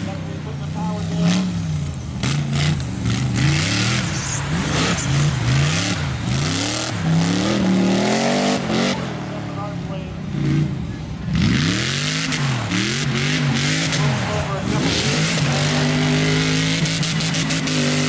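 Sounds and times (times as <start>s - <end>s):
engine revving: 0.0s - 18.0s
rushing noise: 1.5s - 9.2s.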